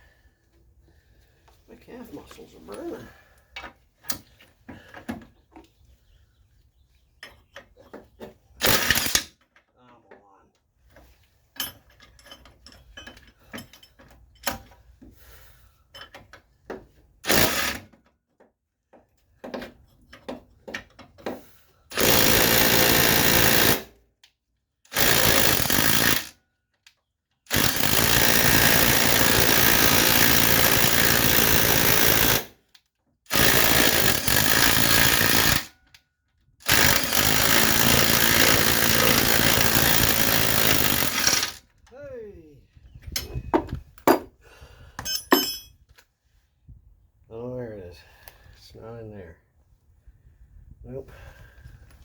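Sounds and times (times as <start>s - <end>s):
tool knocks: 43.6s - 44.3s, 45.0s - 45.7s
impact tool hammering: 44.0s - 44.3s, 45.0s - 45.7s.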